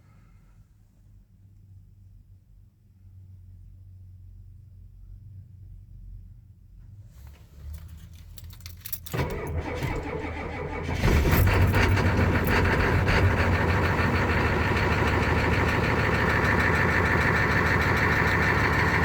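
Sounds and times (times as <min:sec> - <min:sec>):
starter cranking: 0:08.7 - 0:19.0
diesel engine idling: 0:09.1 - 0:19.0.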